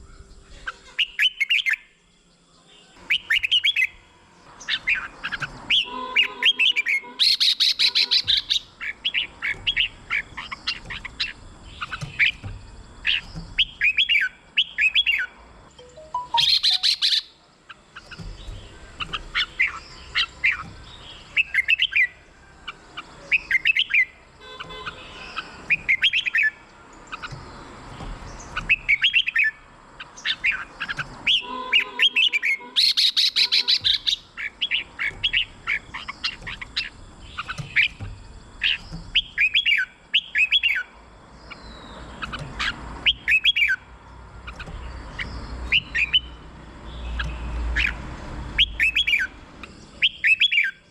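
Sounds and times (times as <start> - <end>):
bird whistled warbling: 13.1 - 17.4, 31.2 - 37.9, 38.6 - 40.9, 48.6 - 49.3, 50.0 - 50.8
bird harsh buzzy call: 31.2 - 36.9.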